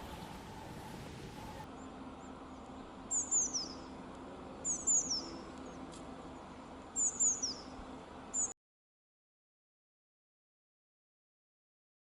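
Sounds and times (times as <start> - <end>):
songbird calling: 0.0 - 4.0, 4.6 - 8.6.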